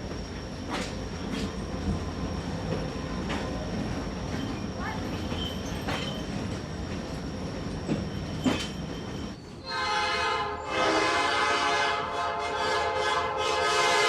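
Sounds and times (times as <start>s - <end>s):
train rumbling along: 0.0s - 14.0s
train horn blasts: 9.6s - 14.0s.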